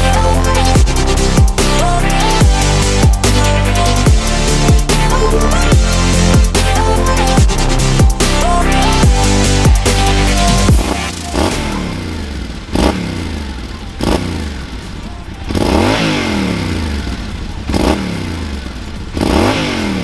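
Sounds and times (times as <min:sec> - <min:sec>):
motorcycle engine revving: 0:08.3 - 0:14.9, 0:15.5 - 0:20.0.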